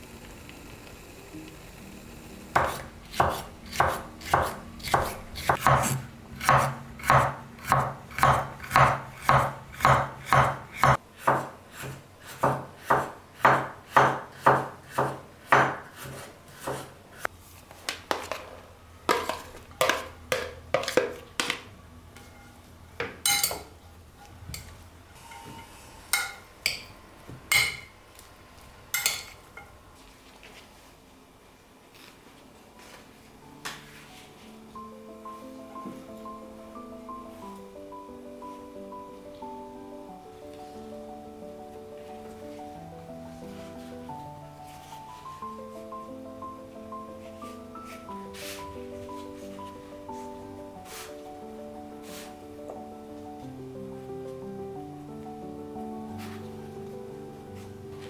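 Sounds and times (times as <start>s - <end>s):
knife chopping on wooden board: 2.6s - 17.0s.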